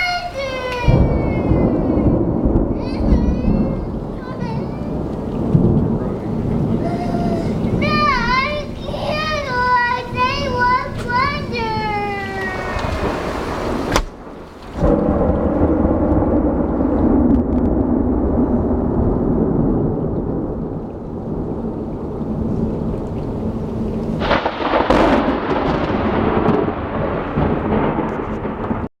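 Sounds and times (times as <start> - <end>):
steady rain: 0.0 - 28.9
thunder rumbling: 0.0 - 28.9.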